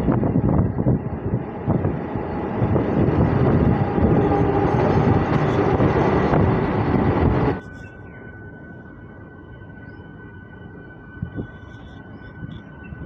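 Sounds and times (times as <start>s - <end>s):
train wheels on rails: 0.5s - 7.6s.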